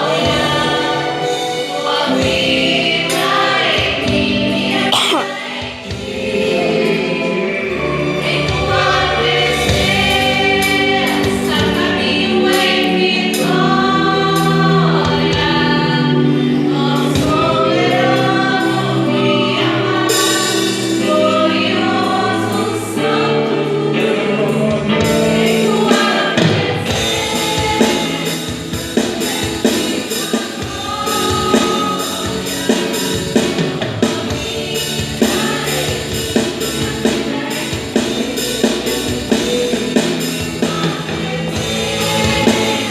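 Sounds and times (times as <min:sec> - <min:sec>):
backing band: 0:00.0 - 0:42.9
vocal group singing in harmony: 0:00.0 - 0:42.9
drum beat: 0:04.9 - 0:06.3.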